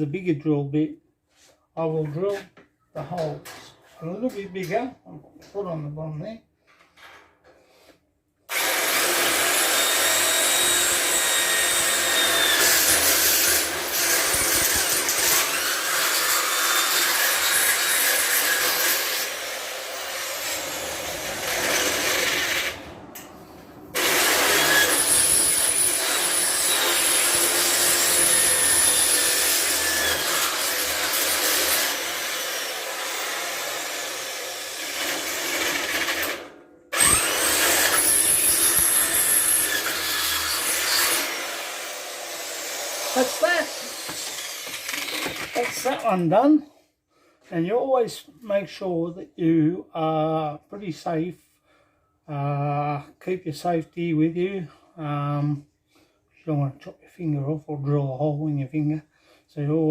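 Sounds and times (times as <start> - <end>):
power drill drilling: 8.5 - 46.0.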